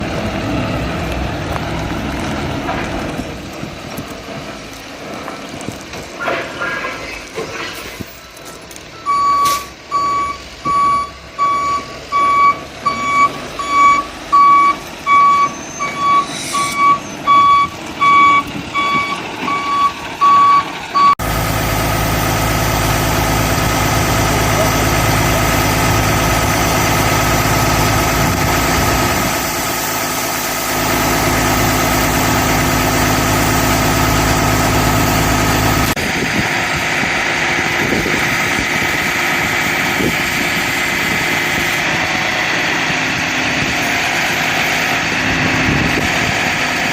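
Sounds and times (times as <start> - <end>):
heavy truck engine running: 0.0 - 46.9
truck backup alarm beeping: 8.2 - 21.3.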